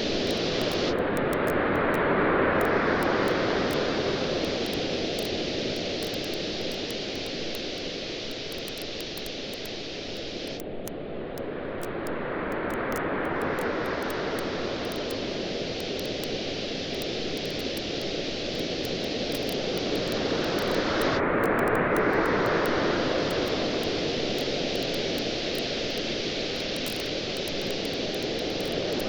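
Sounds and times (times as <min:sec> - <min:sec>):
ocean waves washing on shore: 0:00.0 - 0:08.4, 0:11.5 - 0:29.0
wood fire crackling: 0:24.2 - 0:29.0.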